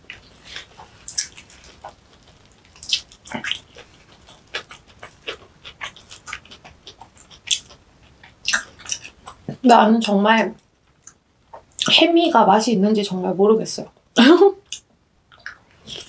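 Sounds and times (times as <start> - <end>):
wet chewing and lip-smacking: 0.1 - 10.2.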